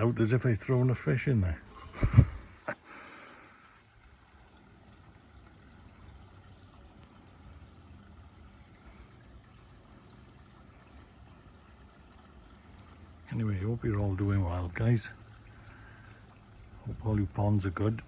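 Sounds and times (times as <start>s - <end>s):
faint trickle of running water: 0.0s - 18.0s.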